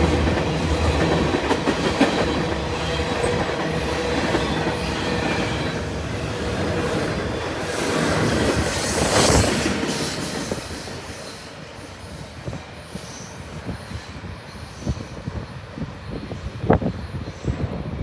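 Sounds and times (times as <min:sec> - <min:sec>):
freight train rolling past: 0:00.0 - 0:18.0.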